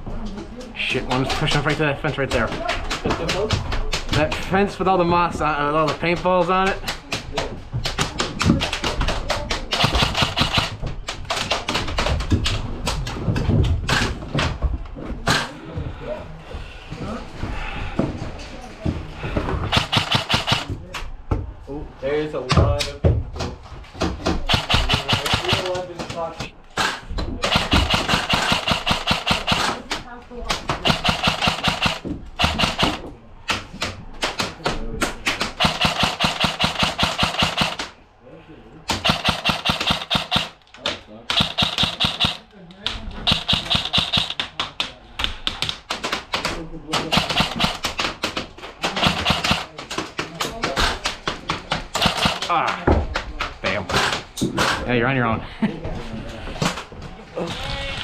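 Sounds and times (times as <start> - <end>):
airsoft gun shots: 9.8 - 10.8, 19.7 - 20.7, 24.4 - 25.8, 26.8 - 29.8, 30.8 - 33.0, 35.5 - 37.9, 38.9 - 40.6, 41.3 - 42.4, 43.2 - 44.4, 47.0 - 48.0, 49.0 - 49.7, 52.0 - 52.5.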